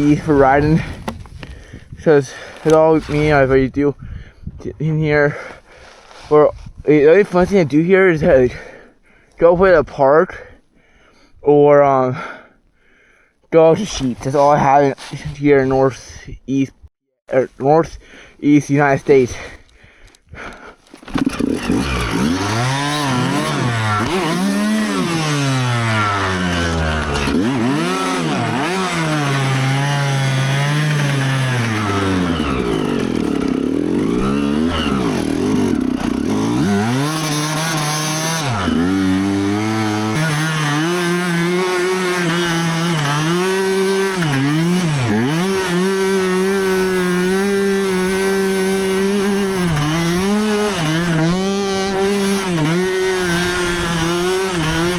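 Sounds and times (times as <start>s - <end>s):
dirt bike engine revving: 21.0s - 54.9s.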